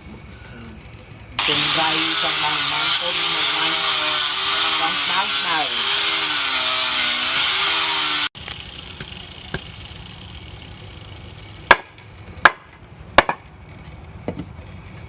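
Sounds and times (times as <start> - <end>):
power tool running: 1.4 - 11.7
hammer striking wood: 11.7 - 13.4.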